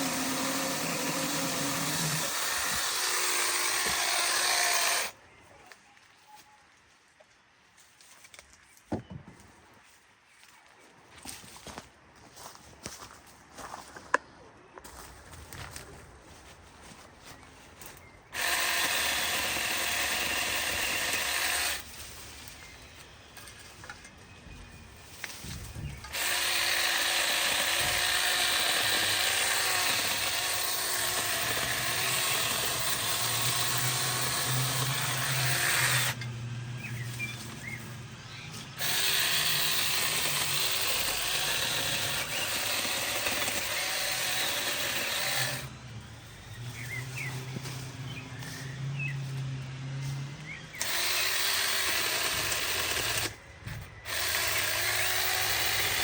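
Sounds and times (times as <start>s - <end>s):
power saw cutting wood: 0.0s - 5.2s, 18.4s - 21.9s, 26.1s - 37.9s, 38.5s - 45.8s, 50.0s - 56.0s.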